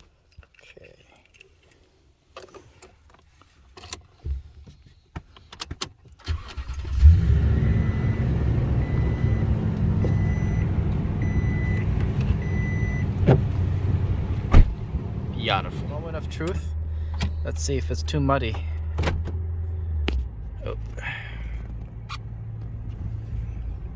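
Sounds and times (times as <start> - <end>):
truck engine starting and idling: 6.2 - 23.9
dashboard warning chime beeping: 7.1 - 16.7.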